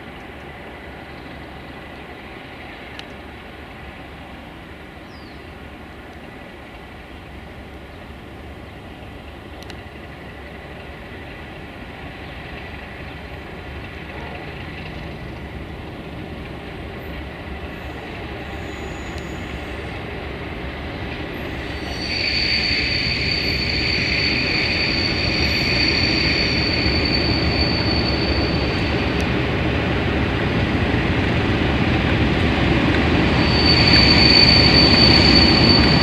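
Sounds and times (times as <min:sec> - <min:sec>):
train rumbling: 0:00.0 - 0:36.0
high steady squeal: 0:17.1 - 0:30.6, 0:31.8 - 0:36.0.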